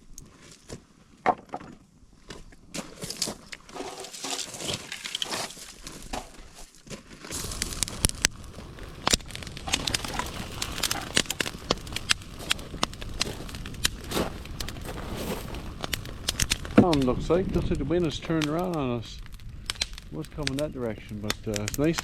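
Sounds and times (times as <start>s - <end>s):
fire crackling and popping: 0.0s - 0.4s, 2.1s - 22.0s
wind rumbling on microphone: 7.3s - 22.0s.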